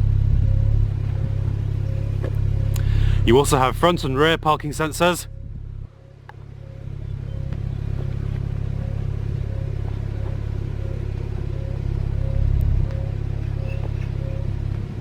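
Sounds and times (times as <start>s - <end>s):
car engine idling: 0.0s - 5.8s.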